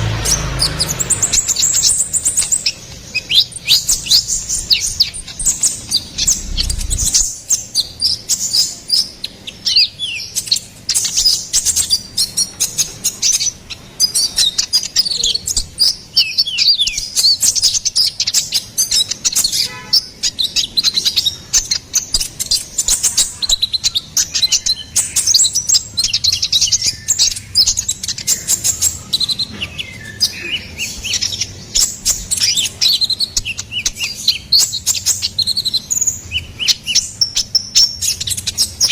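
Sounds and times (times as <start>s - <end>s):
bird singing rapid chirps: 0.0s - 38.9s
low bump: 3.9s - 7.4s.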